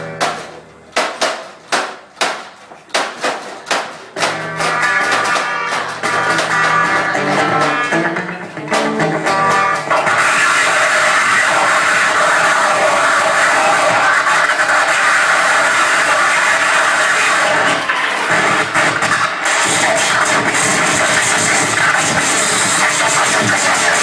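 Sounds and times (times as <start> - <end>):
guitar chords strummed: 0.0 - 1.0, 4.2 - 14.2
band playing dense wall of noise: 0.0 - 2.6, 3.2 - 24.0.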